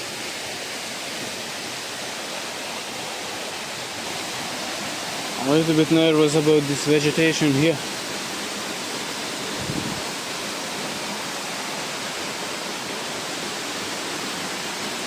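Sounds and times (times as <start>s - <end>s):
rush of flowing water: 0.0s - 15.0s.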